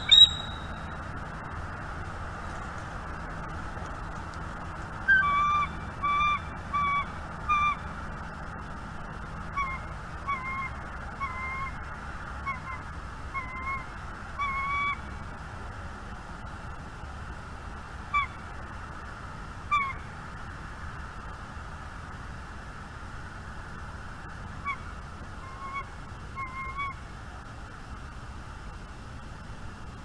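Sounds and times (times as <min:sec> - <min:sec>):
bird calling in short notes: 0:00.0 - 0:00.9.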